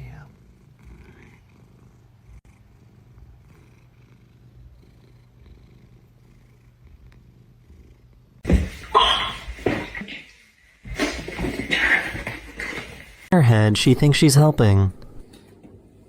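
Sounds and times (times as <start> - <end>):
cat purring: 0.0 - 8.4.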